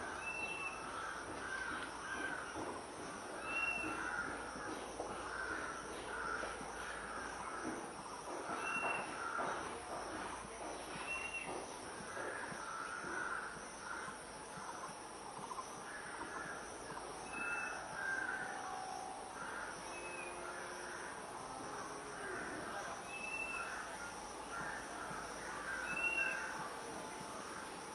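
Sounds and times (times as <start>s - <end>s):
faint insect hiss: 0.0s - 27.9s
harsh bird calls: 22.7s - 26.8s.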